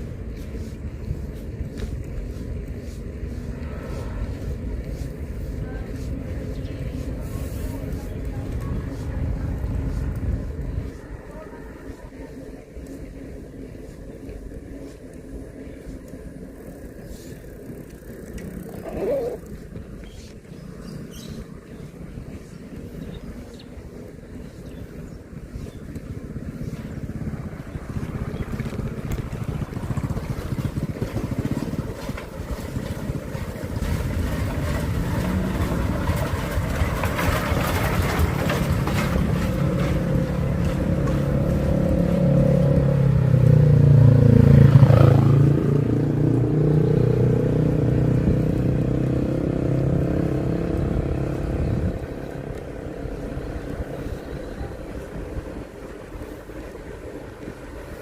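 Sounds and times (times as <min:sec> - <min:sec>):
vehicle passing close: 0:15.6 - 0:58.0.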